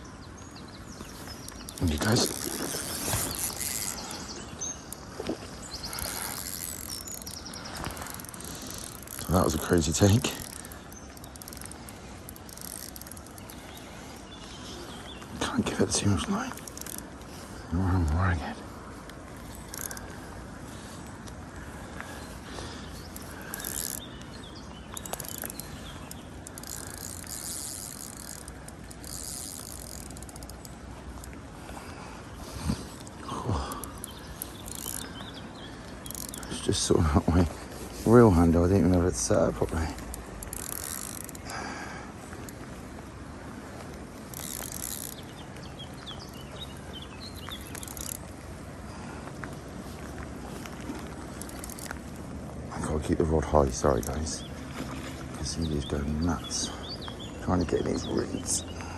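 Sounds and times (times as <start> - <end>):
fishing reel ratchet clicking: 1.1 - 5.0, 5.8 - 14.2, 16.5 - 17.3, 19.3 - 20.3, 22.9 - 31.4, 33.8 - 36.9, 38.9 - 41.6, 43.7 - 46.4, 47.3 - 48.6, 49.9 - 52.2.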